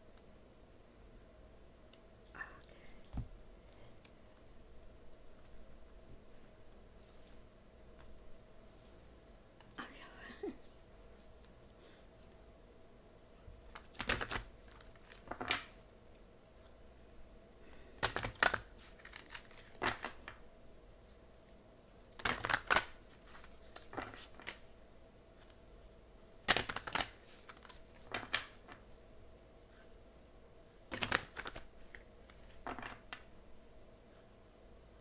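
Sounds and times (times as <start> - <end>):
cards being shuffled: 13.7 - 15.7, 18.0 - 20.4, 22.2 - 24.6, 26.5 - 28.8, 30.9 - 33.3.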